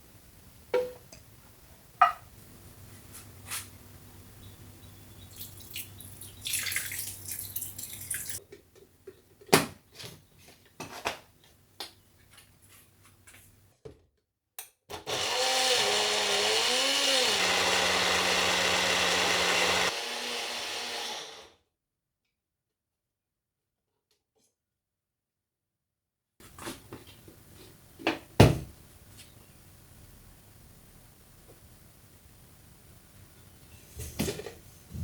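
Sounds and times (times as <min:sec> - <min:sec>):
electric mixer grinder running: 0:15.0 - 0:21.6.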